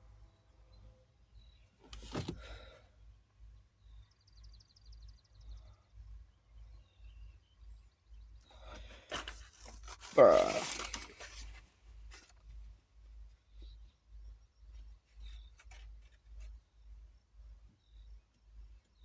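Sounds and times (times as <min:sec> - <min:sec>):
handling rustle: 0:01.8 - 0:02.7, 0:08.5 - 0:13.8, 0:14.8 - 0:16.6.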